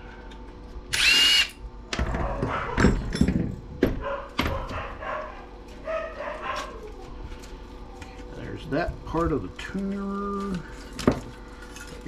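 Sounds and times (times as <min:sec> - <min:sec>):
knocks and clatter of parts: 0:01.9 - 0:04.9, 0:09.0 - 0:12.0
dogs barking and whining: 0:02.0 - 0:03.2, 0:03.8 - 0:08.2.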